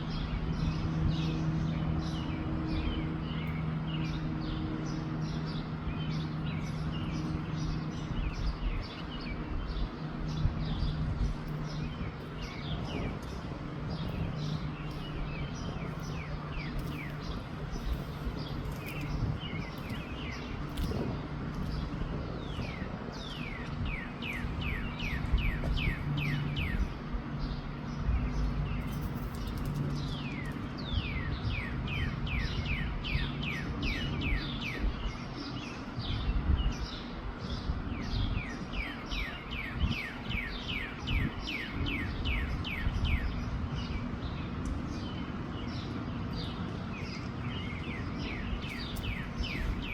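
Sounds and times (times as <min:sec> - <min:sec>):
wind rumble on microphone: 0:00.0 - 0:49.9.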